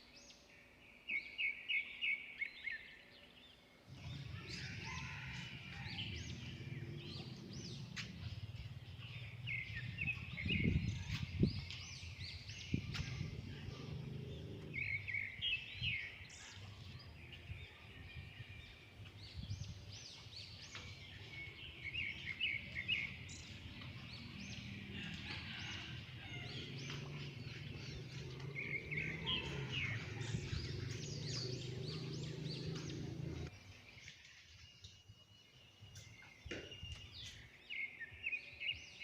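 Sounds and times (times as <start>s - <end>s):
steady low rumble: 3.9s - 17.7s, 20.9s - 33.5s
small birds chirping: 18.7s - 38.7s.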